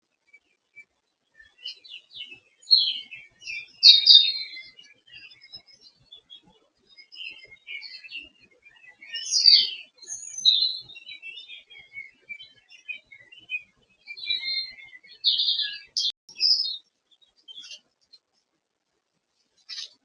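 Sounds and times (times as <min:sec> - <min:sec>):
songbirds singing and chirping: 0:00.0 - 0:18.4, 0:19.4 - 0:20.0.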